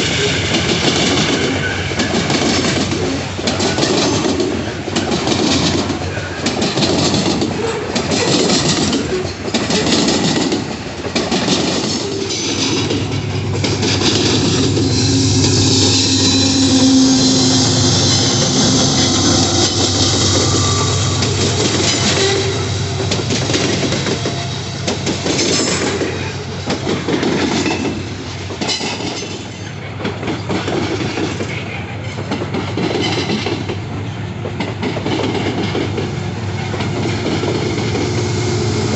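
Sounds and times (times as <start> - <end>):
metal wheels squealing on rails: 0.0 - 4.4, 11.6 - 32.4
train wheels clicking over rail joints: 0.0 - 38.9
low diesel drone: 12.6 - 26.7.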